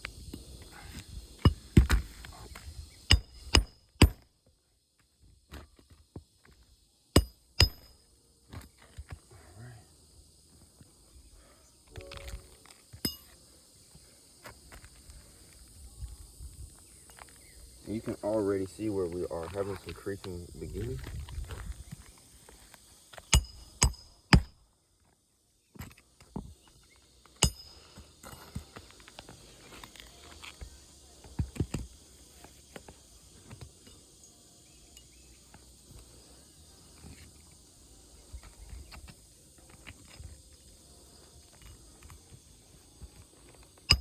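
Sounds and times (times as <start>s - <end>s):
high drone of insects: 0.0s - 44.0s
hammer striking nails: 7.2s - 7.9s.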